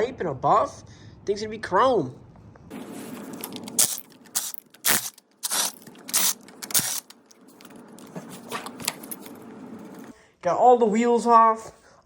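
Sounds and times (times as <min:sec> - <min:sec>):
tools scraping: 0:02.7 - 0:10.1
metal parts clinking: 0:03.4 - 0:07.7.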